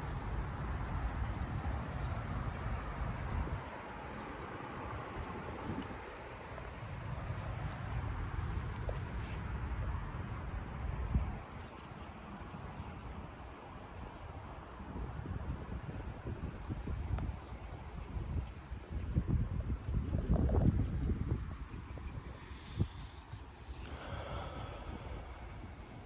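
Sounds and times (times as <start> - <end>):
low uneven rumble: 21.9 - 26.0.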